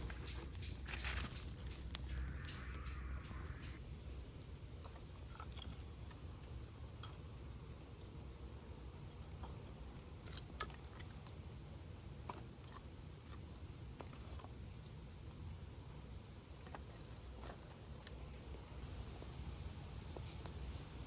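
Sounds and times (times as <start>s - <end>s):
campfire crackling and popping: 0.0s - 8.4s
low steady rumble: 0.0s - 21.0s.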